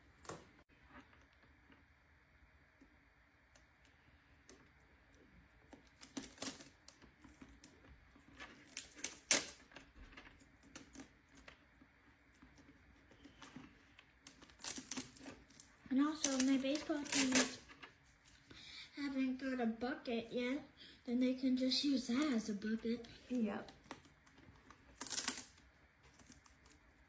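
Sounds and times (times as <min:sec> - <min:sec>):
scissors snipping paper: 0:16.2 - 0:17.6, 0:24.9 - 0:26.8.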